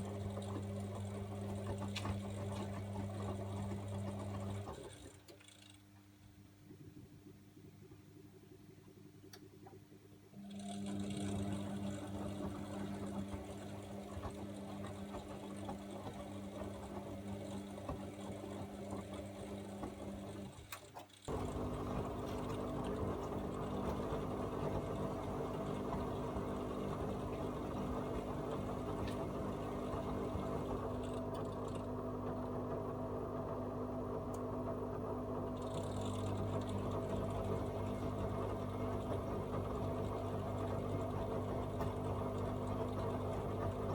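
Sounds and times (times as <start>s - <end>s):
water rushing into washing machine: 0.0s - 5.3s, 10.4s - 43.9s
drum motor turning drum: 10.4s - 33.6s.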